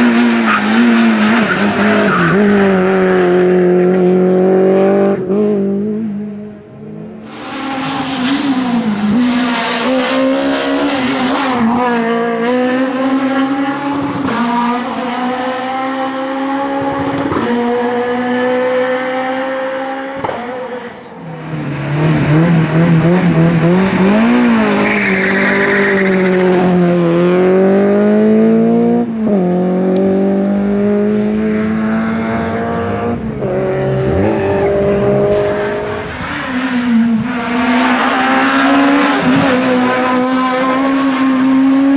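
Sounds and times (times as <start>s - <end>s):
rally car engines revving high: 0.0s - 41.9s
tyres squealing: 7.3s - 11.9s, 17.5s - 21.6s.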